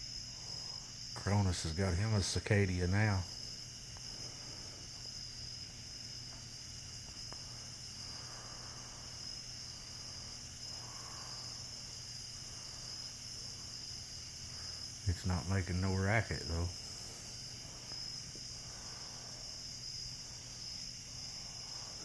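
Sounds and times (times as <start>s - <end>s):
crickets chirping: 0.0s - 22.0s
faint ticks: 3.9s - 8.2s, 16.9s - 18.7s.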